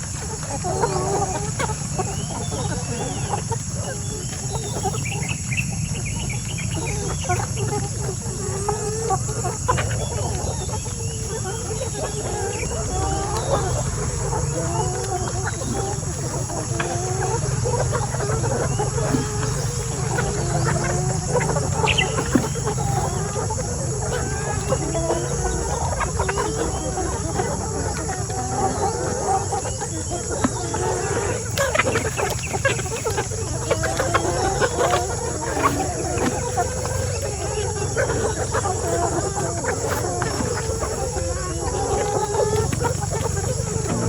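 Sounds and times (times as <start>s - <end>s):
hens clucking: 0.0s - 44.0s
high insect drone: 0.0s - 44.0s.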